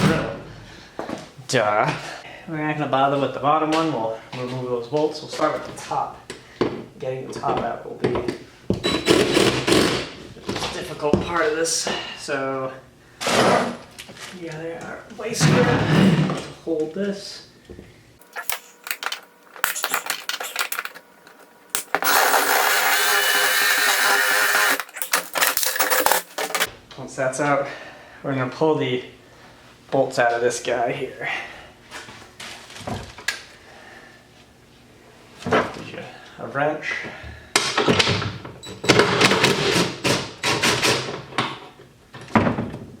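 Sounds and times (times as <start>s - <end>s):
battery power tool running: 21.7s - 26.7s
metallic clicks and clanks: 23.4s - 26.7s.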